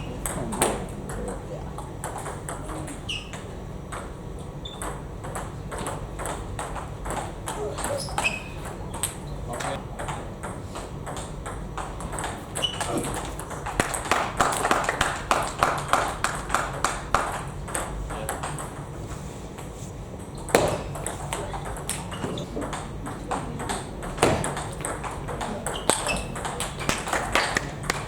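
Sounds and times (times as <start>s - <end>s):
table tennis ball hits: 0.0s - 19.0s, 19.6s - 28.0s
sharp loud knock: 20.5s - 21.0s.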